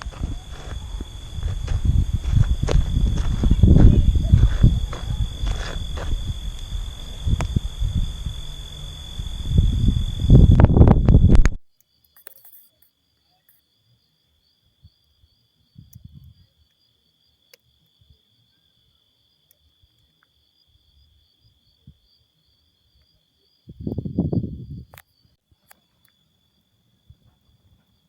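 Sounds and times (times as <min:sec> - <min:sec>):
low rumble: 0:00.0 - 0:11.6
crickets trilling: 0:00.0 - 0:28.0.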